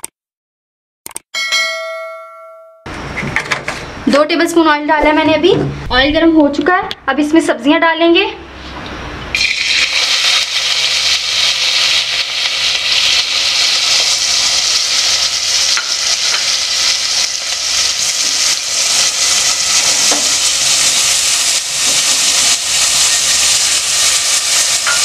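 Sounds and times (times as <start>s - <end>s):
onions sizzling in hot oil: 9.3s - 25.0s
oil crackling: 9.4s - 25.0s.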